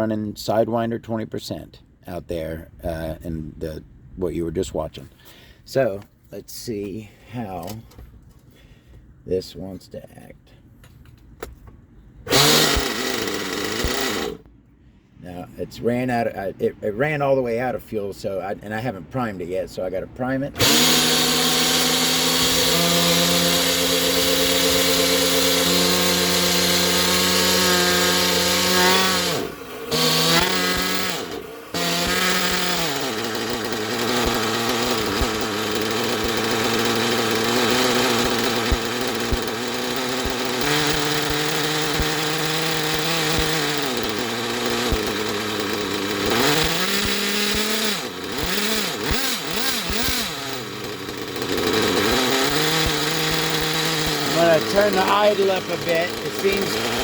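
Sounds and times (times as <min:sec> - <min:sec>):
nitro rc engine revving and idling: 0:12.3 - 0:14.5, 0:20.3 - 0:57.0.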